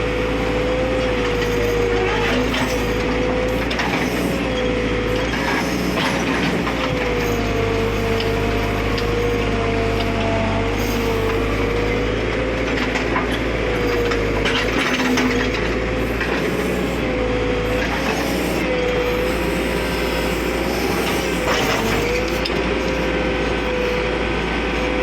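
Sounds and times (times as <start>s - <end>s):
backhoe engine and hydraulic whine: 0.0s - 25.0s.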